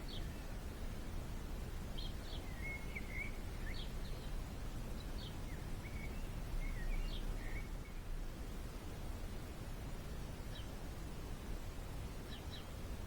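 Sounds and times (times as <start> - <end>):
small birds chirping: 0.0 - 0.6, 1.9 - 8.1, 12.2 - 12.8.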